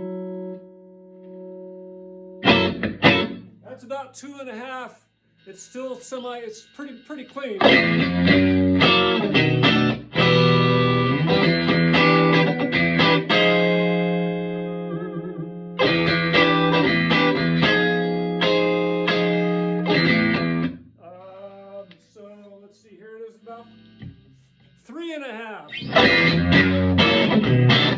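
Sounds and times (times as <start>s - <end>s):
clean electric guitar chords: 0.0s - 3.6s, 7.6s - 20.8s, 25.7s - 27.9s.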